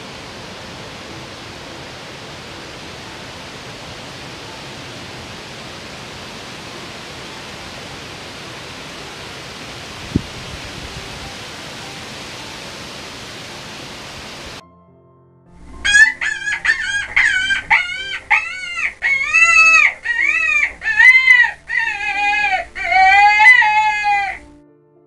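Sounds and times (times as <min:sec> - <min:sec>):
outdoor ambience hiss: 0:00.0 - 0:14.6, 0:15.6 - 0:24.6
high-pitched animal calls: 0:15.8 - 0:24.5.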